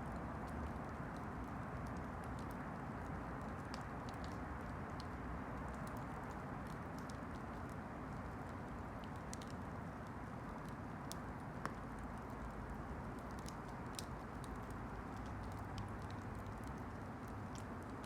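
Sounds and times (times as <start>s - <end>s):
campfire crackling and popping: 0.1s - 18.0s.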